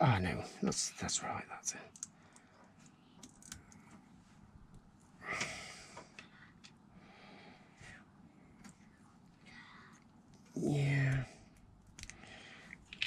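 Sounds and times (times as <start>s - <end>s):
plastic pieces clicking: 3.2s - 3.8s, 11.9s - 12.2s.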